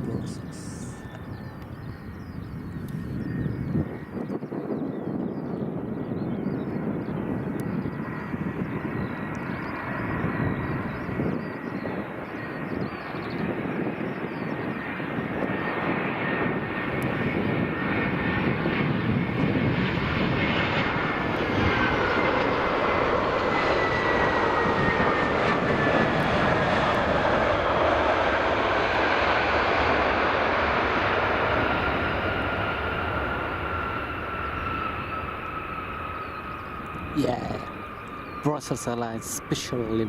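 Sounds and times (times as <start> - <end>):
jet airliner engines passing: 0.0 - 40.0.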